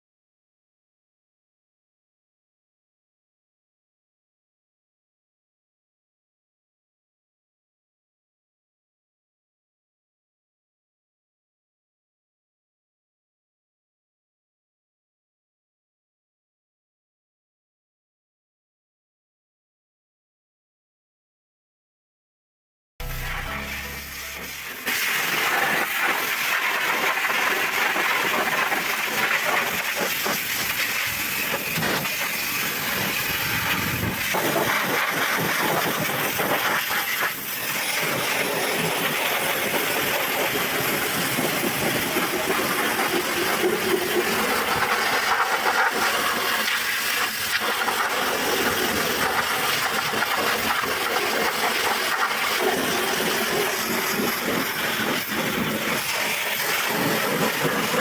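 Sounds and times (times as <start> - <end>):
pressure washer spraying water: 23.0 - 58.0.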